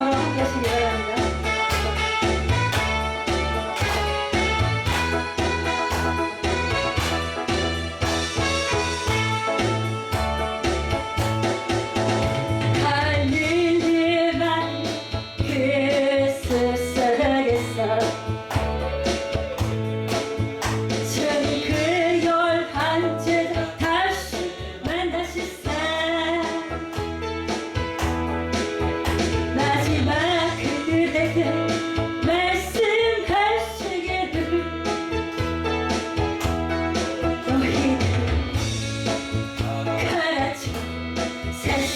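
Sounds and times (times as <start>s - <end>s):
instrumental accompaniment with bass: 0.0s - 41.9s
woman singing worship song: 12.7s - 18.7s, 21.0s - 26.8s, 29.6s - 34.9s, 37.4s - 38.4s, 39.6s - 41.9s.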